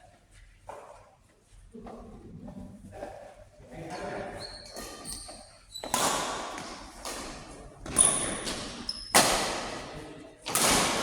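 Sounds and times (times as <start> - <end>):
shoe squeaks on court floor: 4.4 - 6.7, 7.9 - 9.3
racket hits ringing: 5.8 - 11.0.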